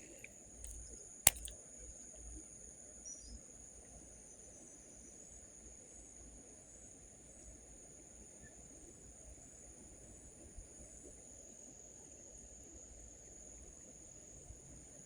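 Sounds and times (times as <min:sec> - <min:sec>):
sharp click: 0:00.0 - 0:01.6.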